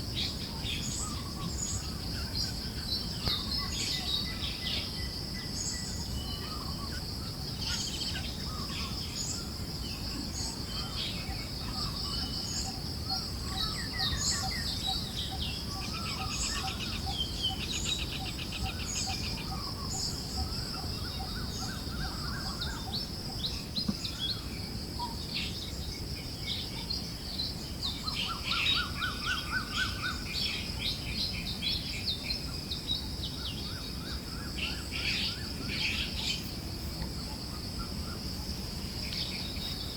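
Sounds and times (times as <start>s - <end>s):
birds chirping and trilling: 0.0s - 39.9s
high insect drone: 0.0s - 39.9s.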